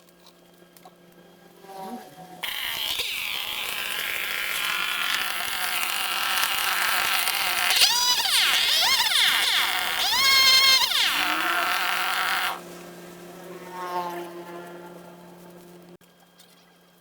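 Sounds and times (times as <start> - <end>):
brush cutter engine buzzing: 2.4 - 13.6.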